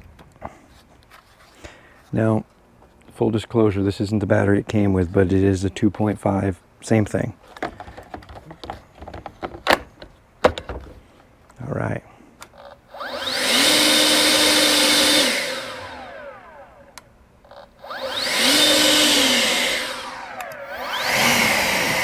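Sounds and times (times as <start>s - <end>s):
leaf blower fan whine: 12.5s - 22.0s.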